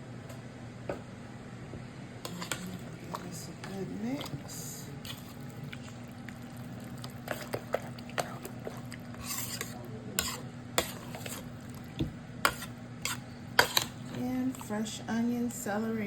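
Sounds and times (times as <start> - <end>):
steady low hum: 0.0 - 16.0
spoon scraping a pot: 2.2 - 6.0, 7.0 - 11.6, 12.4 - 14.8.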